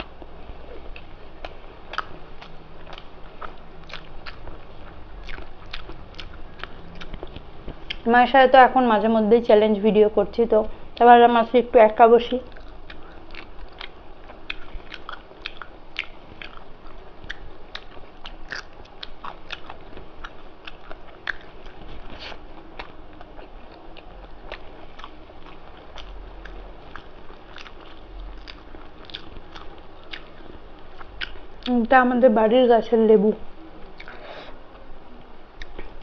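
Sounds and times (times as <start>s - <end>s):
person chewing food: 0.0s - 8.0s, 12.5s - 31.7s, 33.8s - 34.8s, 35.6s - 36.0s.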